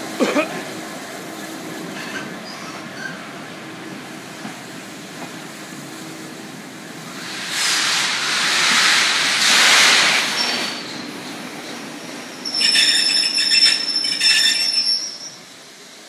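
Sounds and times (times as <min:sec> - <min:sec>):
train rumbling past: 0:00.0 - 0:16.0
loud hiss: 0:06.9 - 0:16.0.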